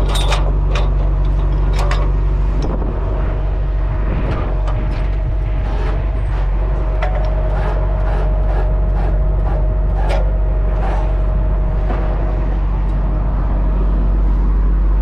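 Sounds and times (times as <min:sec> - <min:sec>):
clicks and rattles: 0:00.0 - 0:02.8
heavy truck engine running: 0:00.0 - 0:15.0
steady whine: 0:00.0 - 0:15.0.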